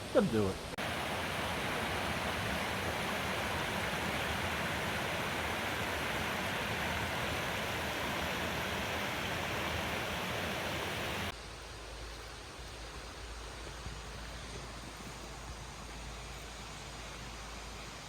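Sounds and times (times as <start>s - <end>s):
waterfall rushing: 0.0s - 11.3s.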